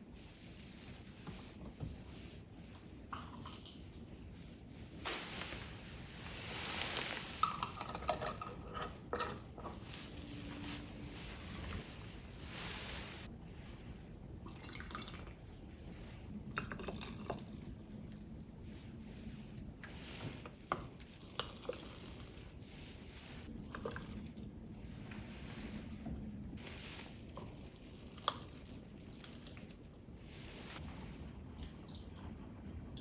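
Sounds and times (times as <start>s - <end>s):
water running: 5.1s - 8.0s.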